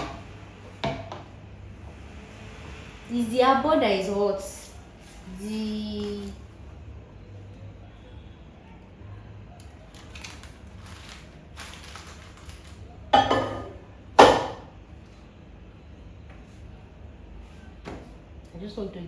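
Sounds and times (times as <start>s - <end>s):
rustling and handling noise: 4.8s - 6.6s, 9.6s - 13.7s.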